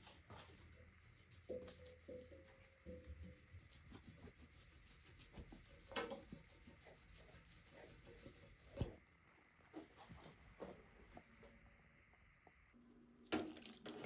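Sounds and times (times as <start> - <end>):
faint rubbing and handling noises: 0.0 - 9.0
scrape: 0.0 - 9.0.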